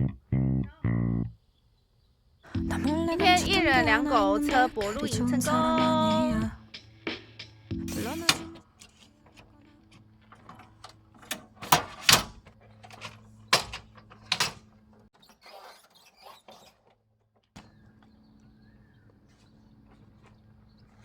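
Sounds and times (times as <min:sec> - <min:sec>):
low hum: 0:02.6 - 0:06.8.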